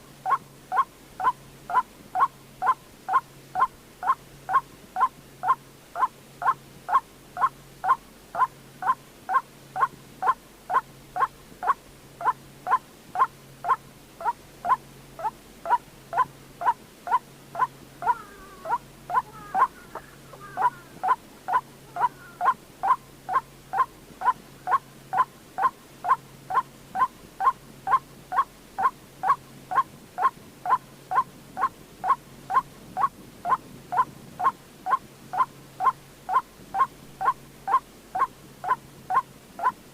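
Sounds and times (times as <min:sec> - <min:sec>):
waterhen kwok calls: 0:00.2 - 0:39.8.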